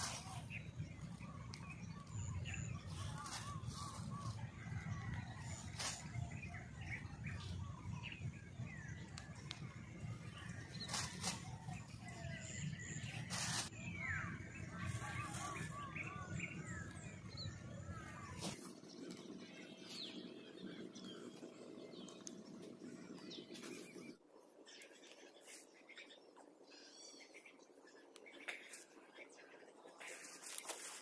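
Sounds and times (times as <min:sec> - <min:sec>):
low microphone rumble: 0:00.0 - 0:24.1
small birds chirping: 0:00.0 - 0:31.0.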